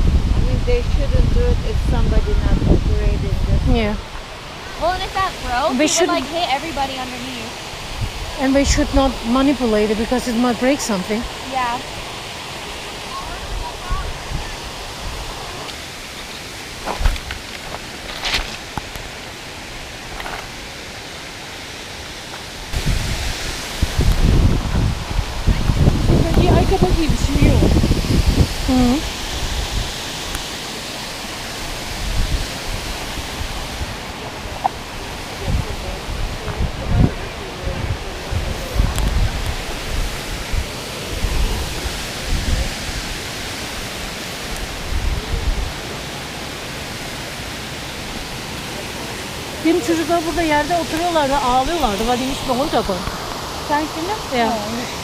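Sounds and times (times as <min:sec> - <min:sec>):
low rumbles: 0:00.0 - 0:19.1, 0:22.6 - 0:30.5
waterfall rushing: 0:00.0 - 0:55.0.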